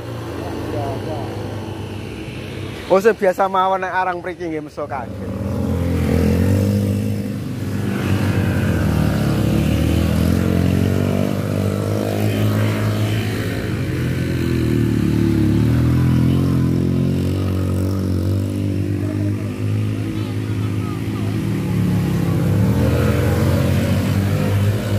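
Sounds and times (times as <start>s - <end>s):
motorcycle engine under heavy throttle: 4.9s - 24.9s.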